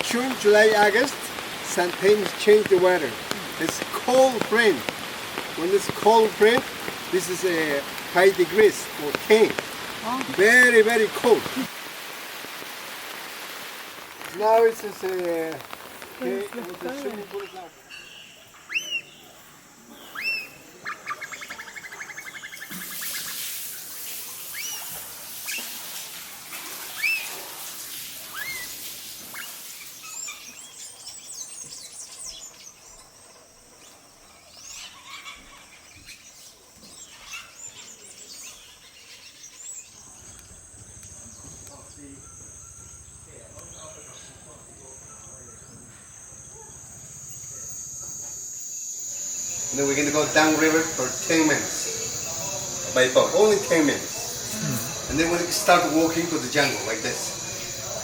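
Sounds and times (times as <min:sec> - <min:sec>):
insects droning: 0:00.0 - 0:58.0
birds chirping and whistling: 0:15.6 - 0:25.8, 0:26.9 - 0:27.4, 0:28.2 - 0:47.8.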